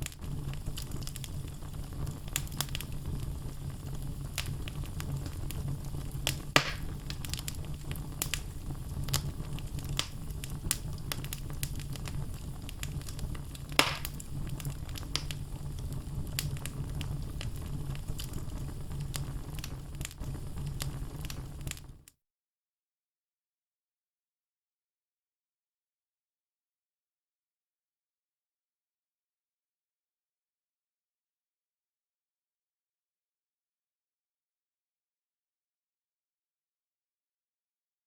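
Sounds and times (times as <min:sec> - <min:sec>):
logs crackling: 0:00.0 - 0:03.3, 0:03.9 - 0:21.9
sharp fire pops: 0:00.0 - 0:22.0
low rumble of flames: 0:00.0 - 0:22.1.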